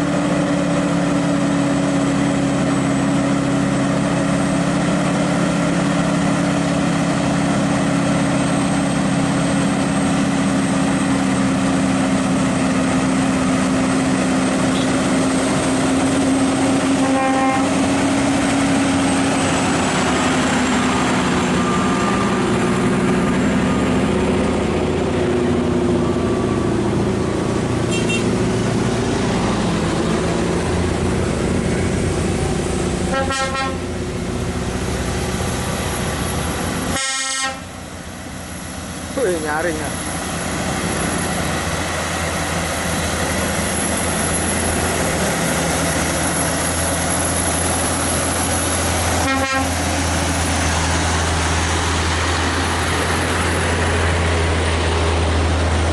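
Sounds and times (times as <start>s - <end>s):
heavy truck engine running: 0.0s - 55.9s
truck horn: 14.7s - 15.1s, 16.8s - 18.0s, 27.8s - 28.5s, 33.1s - 34.0s, 36.9s - 37.8s, 49.1s - 49.9s.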